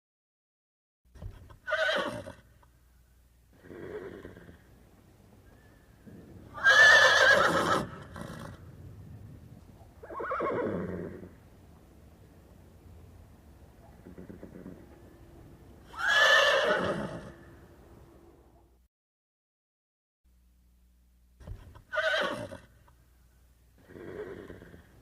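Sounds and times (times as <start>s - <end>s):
horse neighing: 1.6s - 2.5s, 3.5s - 4.7s, 6.4s - 8.6s, 10.0s - 11.4s, 14.0s - 14.9s, 15.8s - 17.5s, 21.9s - 22.7s, 23.8s - 25.0s.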